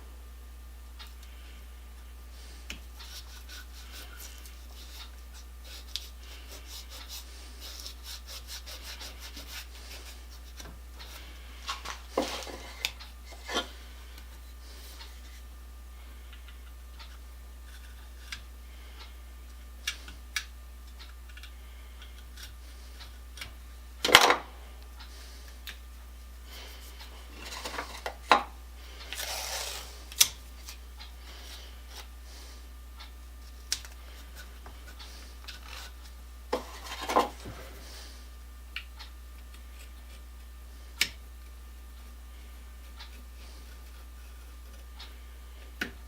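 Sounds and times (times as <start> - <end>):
rubbing and scraping metal parts: 2.4 - 15.5, 29.0 - 32.1, 34.0 - 37.8.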